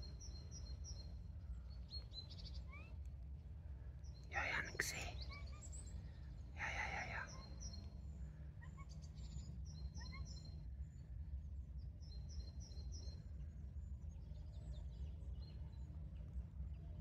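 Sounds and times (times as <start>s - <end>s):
songbird chirping: 4.2s - 5.3s, 6.6s - 7.9s.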